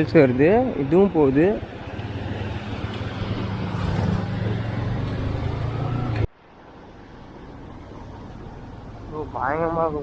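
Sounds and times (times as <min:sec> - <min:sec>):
vehicle engine and road noise: 0:00.0 - 0:10.0.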